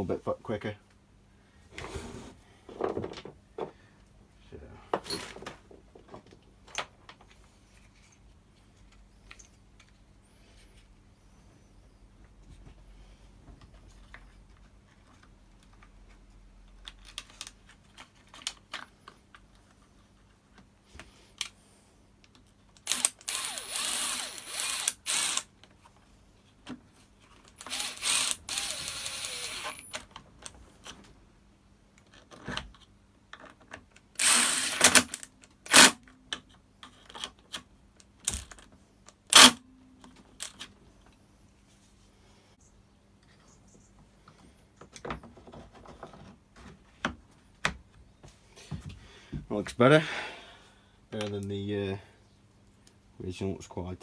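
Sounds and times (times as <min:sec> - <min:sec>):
plastic parts and tools handled: 0:27.2 - 0:31.0.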